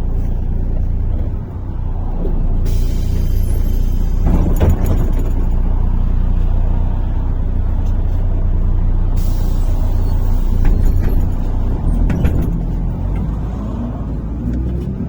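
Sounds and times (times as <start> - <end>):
bus engine and road rumble: 0.0 - 15.0
short knocks or rattles: 4.1 - 5.8, 10.5 - 13.2.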